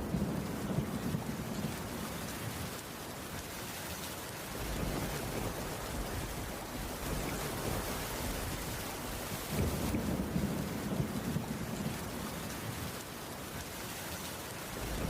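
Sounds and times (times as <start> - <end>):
thunder rumbling: 0.0 - 2.3, 4.6 - 13.0, 14.7 - 15.0
heavy rain on a roof: 0.0 - 15.0.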